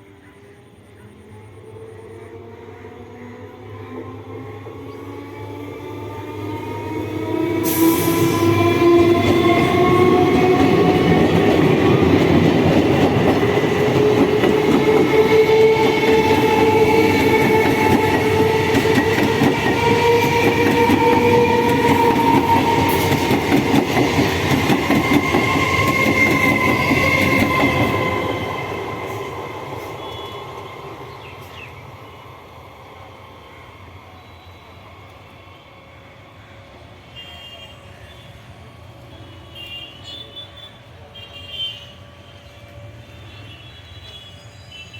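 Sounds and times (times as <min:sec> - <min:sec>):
wheels rattling on rails: 0:08.2 - 0:30.0.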